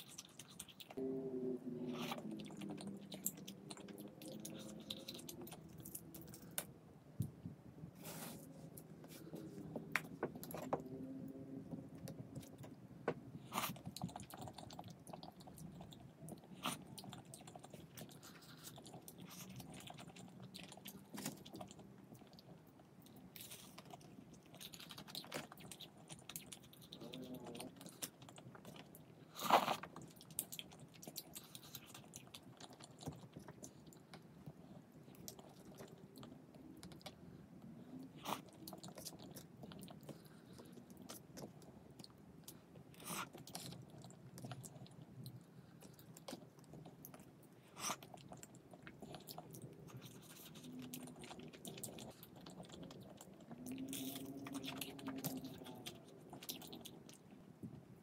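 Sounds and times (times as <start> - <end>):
food crunching: 38.1 - 57.4.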